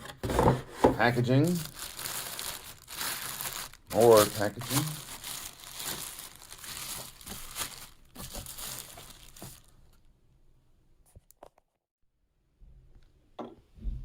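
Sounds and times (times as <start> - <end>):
packaging crinkling: 1.1 - 10.0.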